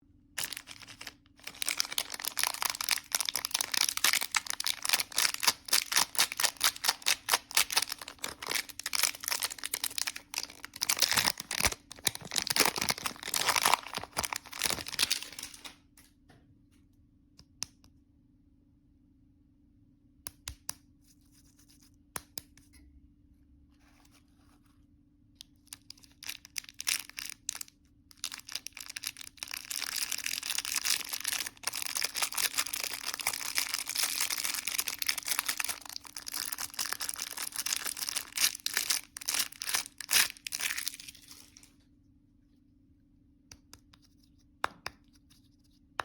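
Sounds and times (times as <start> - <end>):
candy wrapper crinkling: 0.4 - 15.8, 25.6 - 41.8.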